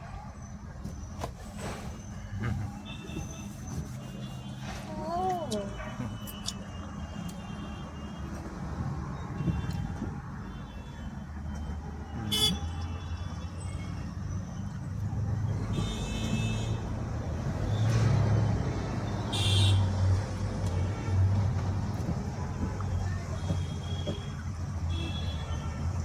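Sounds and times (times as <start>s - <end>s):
road and engine rumble: 0.0s - 26.0s
vehicle horns honking: 12.1s - 14.0s, 15.7s - 17.0s, 19.0s - 26.0s.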